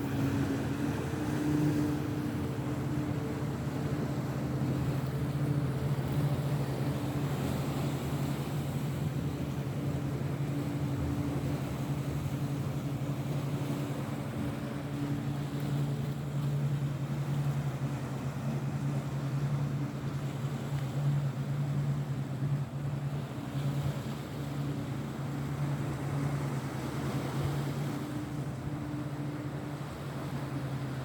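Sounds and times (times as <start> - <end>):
motorboat engine drone: 0.0 - 31.0.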